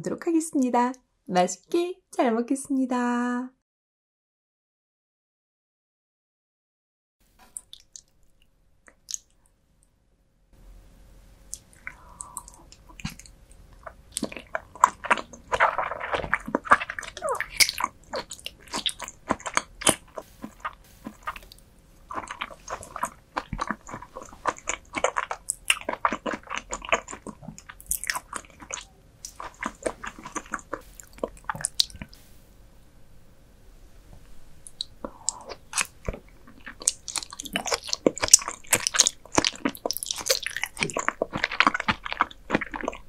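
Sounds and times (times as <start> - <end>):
close chewing and biting: 11.5 - 32.2, 34.7 - 43.0.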